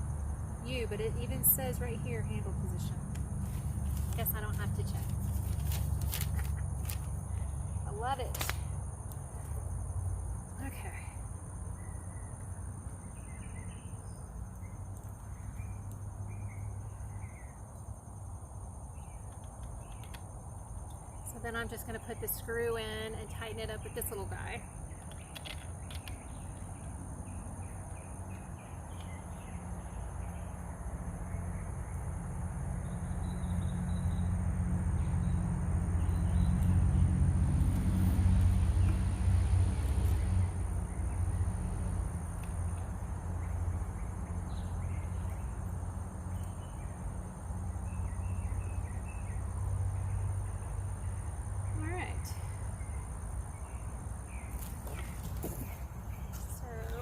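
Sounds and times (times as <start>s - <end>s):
birds chirping: 0.0s - 9.8s, 40.1s - 57.0s.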